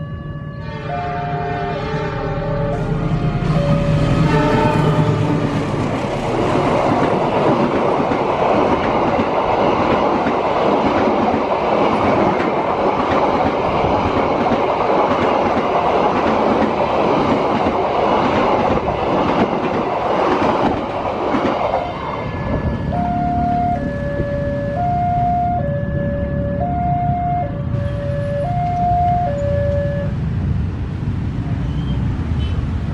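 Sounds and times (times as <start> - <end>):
passing train rumble: 0.0 - 32.9
train wheels clattering on rails: 3.6 - 22.9.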